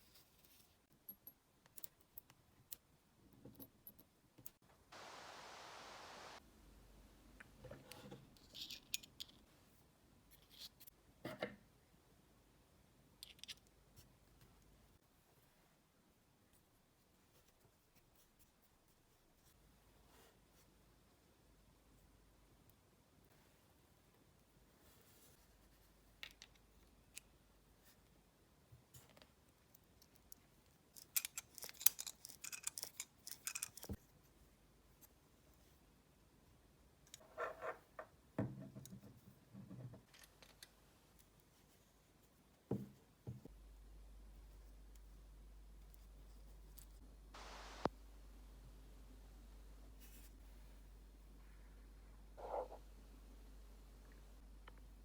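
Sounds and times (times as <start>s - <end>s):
small hard parts clicking: 30.0s - 34.0s.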